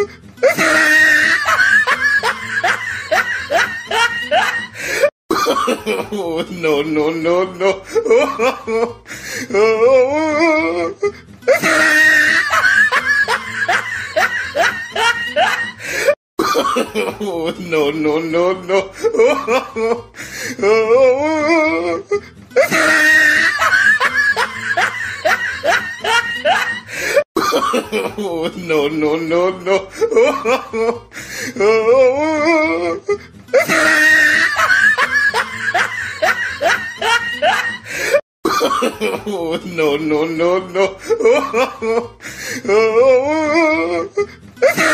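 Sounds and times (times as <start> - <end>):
background music: 0.0 - 44.9
person laughing: 0.0 - 44.9
shrill cry: 0.4 - 4.8, 9.6 - 15.9, 22.6 - 27.0, 33.6 - 37.9.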